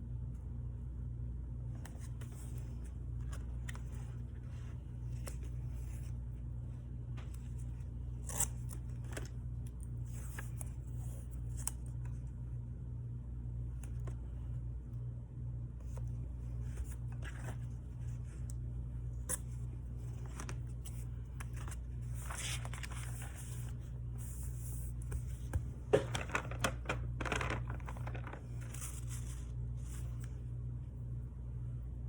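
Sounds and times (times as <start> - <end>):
steady low hum: 0.0 - 32.0
paper rustling and crinkling: 19.1 - 30.4.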